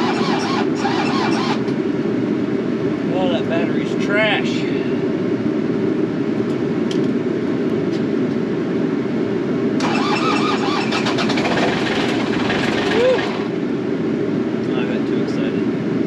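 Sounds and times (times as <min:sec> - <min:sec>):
diesel engine cranking: 0:00.0 - 0:01.7, 0:09.8 - 0:13.5
harsh rattle: 0:09.8 - 0:13.5.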